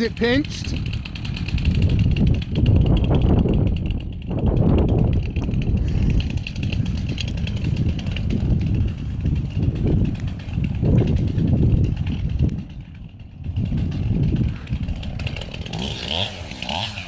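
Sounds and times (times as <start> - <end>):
chainsaw engine at low revs: 0.0 - 17.0.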